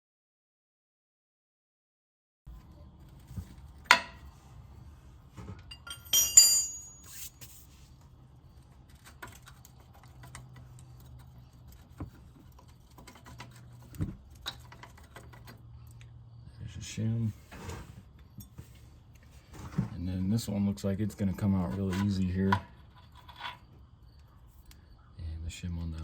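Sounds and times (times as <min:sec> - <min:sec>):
ringing metallic clinks: 0:05.7 - 0:07.1.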